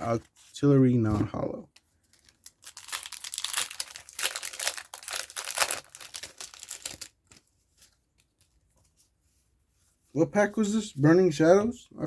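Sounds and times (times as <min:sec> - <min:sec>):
foil wrapper crinkling and tearing: 0:02.0 - 0:07.4.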